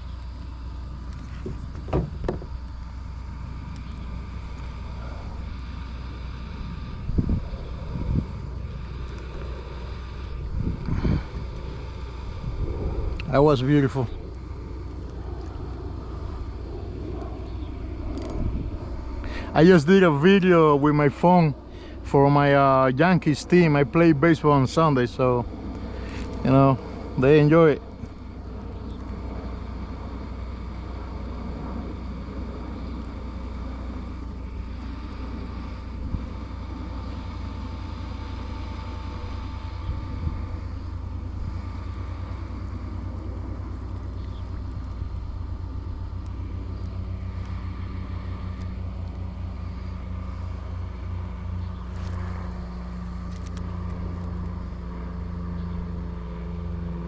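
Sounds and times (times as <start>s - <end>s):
motor drone with low hum: 0.0s - 57.0s
brief knocks: 1.4s - 2.6s.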